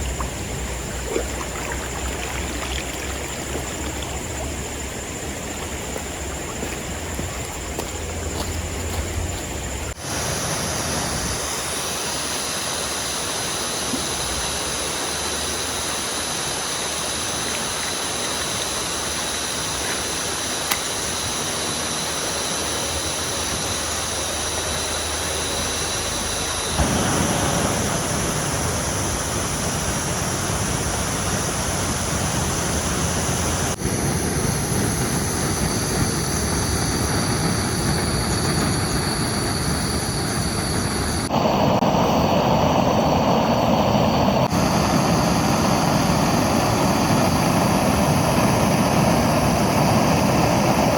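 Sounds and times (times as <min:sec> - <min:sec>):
flowing river water: 0:00.0 - 0:50.9
heavy rain: 0:24.5 - 0:31.2.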